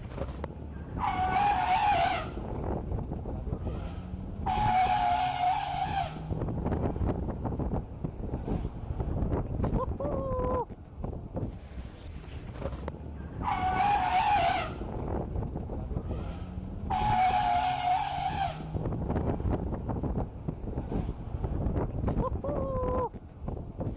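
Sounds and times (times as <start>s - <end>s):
engine and tyre rumble: 0.0s - 23.9s
elephant trumpeting: 0.9s - 2.4s, 4.4s - 6.3s, 13.4s - 14.8s, 16.8s - 18.7s
wind buffeting microphone: 1.9s - 11.8s, 14.5s - 23.9s.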